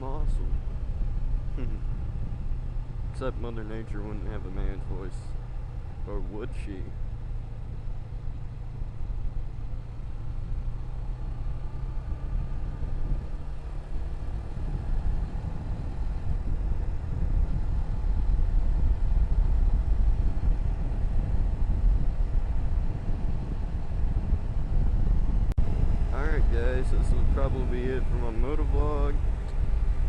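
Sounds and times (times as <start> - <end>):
motorcycle engine: 0.0 - 30.0
wind rumble on microphone: 0.0 - 30.0.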